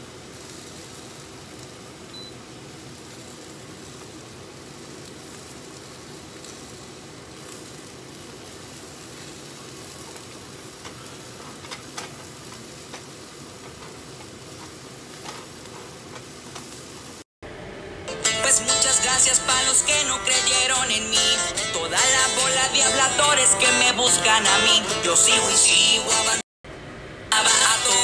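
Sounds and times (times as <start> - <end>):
meat and vegetables sizzling: 0.0 - 17.3.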